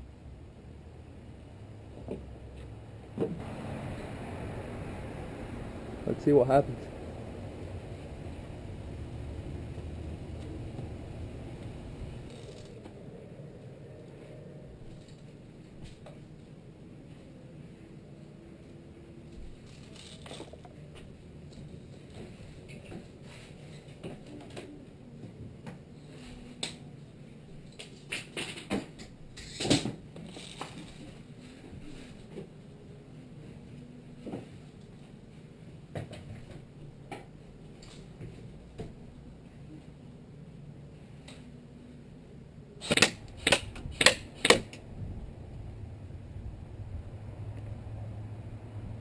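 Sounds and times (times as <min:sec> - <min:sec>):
airsoft rifle shots: 0:42.8 - 0:44.7.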